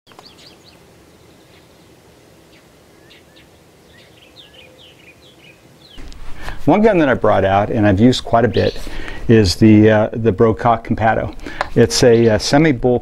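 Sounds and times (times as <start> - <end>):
birds chirping: 0.1 - 13.0
low outdoor hiss: 0.1 - 13.0.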